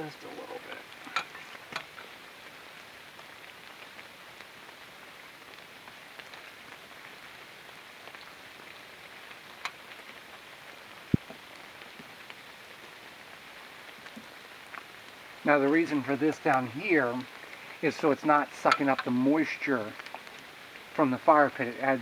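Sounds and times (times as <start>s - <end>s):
light rain pattering: 0.0s - 22.0s.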